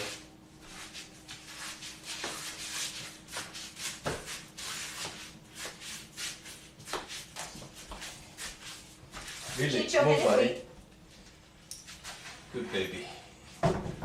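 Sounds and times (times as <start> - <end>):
shuffling and rubbing: 0.0 - 10.3.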